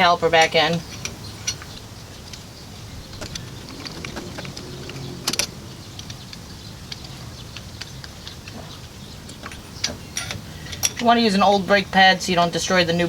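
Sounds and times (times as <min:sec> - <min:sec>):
low hum: 0:01.8 - 0:08.3.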